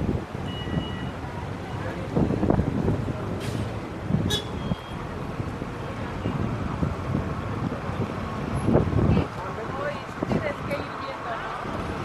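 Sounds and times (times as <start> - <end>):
traffic hum: 0.0 - 12.0.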